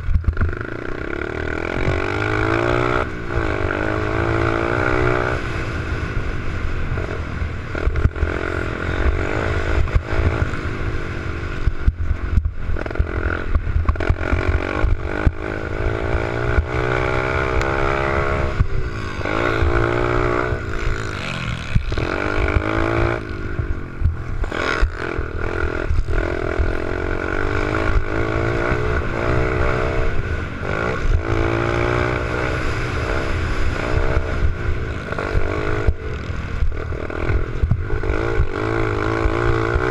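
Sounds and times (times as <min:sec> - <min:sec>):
pit bike engine revving: 0:00.0 - 0:39.9.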